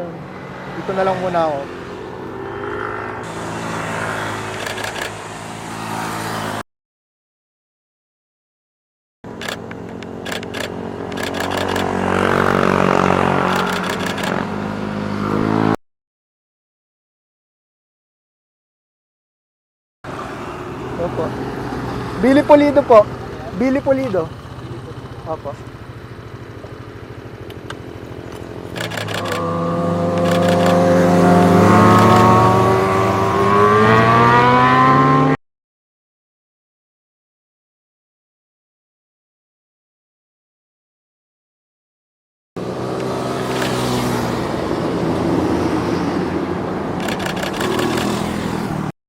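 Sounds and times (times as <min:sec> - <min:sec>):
motorcycle engine passing: 0:00.0 - 0:06.6, 0:09.3 - 0:15.8, 0:20.1 - 0:35.4, 0:42.6 - 0:48.9
sharp clicks: 0:04.5 - 0:05.2, 0:09.3 - 0:11.9, 0:13.5 - 0:14.4, 0:27.4 - 0:29.5, 0:30.1 - 0:30.9, 0:31.9 - 0:32.3, 0:43.0 - 0:43.9, 0:47.0 - 0:48.3.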